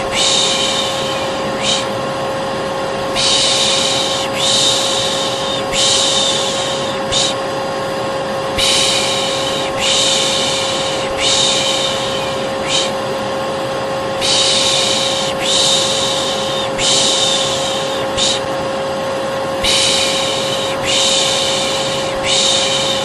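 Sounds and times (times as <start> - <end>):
person shushing: 0.0 - 2.0, 3.1 - 7.4, 8.5 - 13.0, 14.2 - 18.5, 19.6 - 23.0
hair dryer humming: 0.0 - 23.0.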